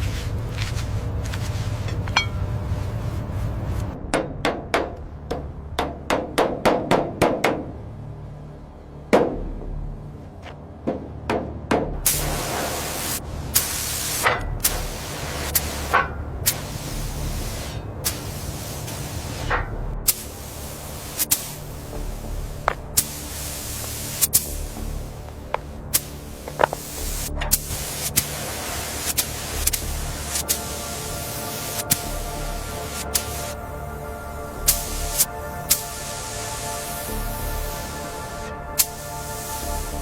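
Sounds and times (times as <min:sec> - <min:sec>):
low hum: 0:00.0 - 0:06.1, 0:07.6 - 0:40.0
steady hiss: 0:12.1 - 0:40.0.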